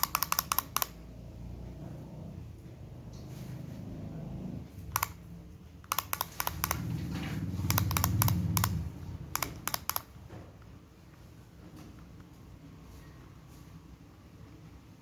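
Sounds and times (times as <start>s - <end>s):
plastic toy clicking: 0.0s - 1.0s, 4.9s - 5.2s, 5.8s - 6.8s, 7.6s - 10.2s.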